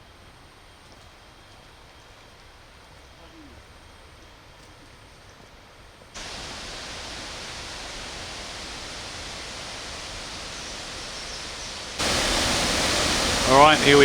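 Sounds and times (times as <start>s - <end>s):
waterfall roaring: 6.2s - 14.0s.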